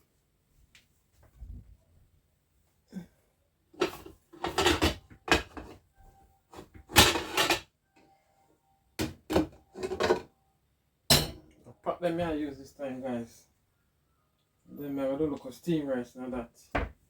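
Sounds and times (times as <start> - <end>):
kitchen things knocking and scraping: 3.8 - 5.8, 6.5 - 7.7, 9.0 - 10.3, 11.1 - 11.5.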